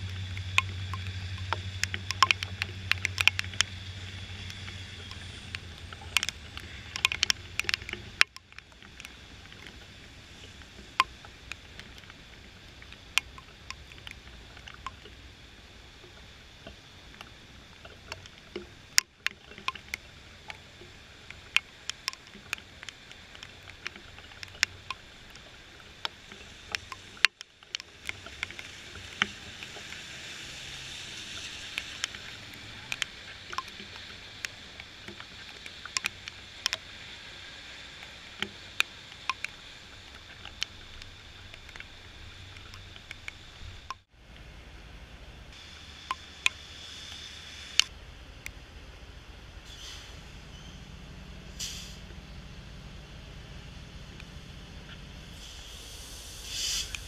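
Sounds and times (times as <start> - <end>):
raindrops ticking on camera: 0.0 - 44.5, 45.5 - 48.6
rain hiss: 0.0 - 57.0.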